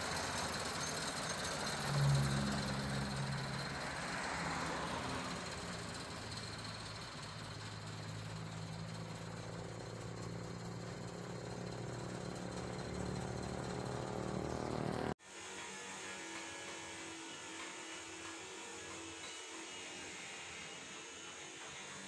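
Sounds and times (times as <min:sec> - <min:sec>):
truck engine idling: 0:00.0 - 0:15.2.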